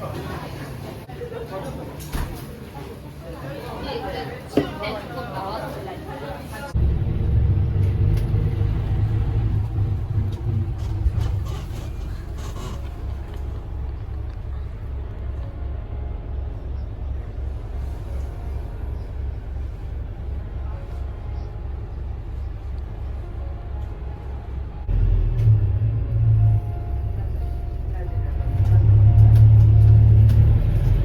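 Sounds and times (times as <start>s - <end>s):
moving vehicle rumble: 6.7s - 31.0s.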